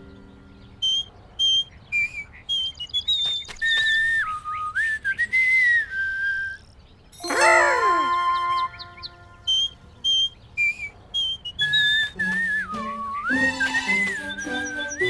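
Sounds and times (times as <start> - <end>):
person whistling a tune: 7.2 - 15.0.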